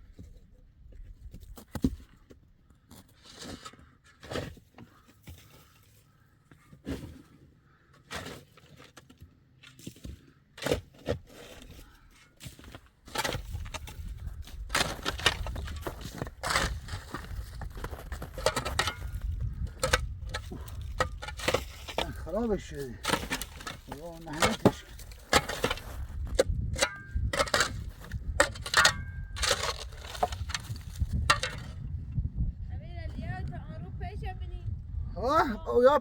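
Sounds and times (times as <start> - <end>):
knocks and clatter of building work: 6.5 - 31.8.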